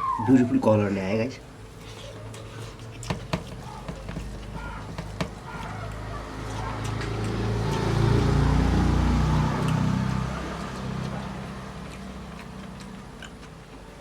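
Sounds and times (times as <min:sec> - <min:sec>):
vehicle engine passing by: 0:05.6 - 0:12.6.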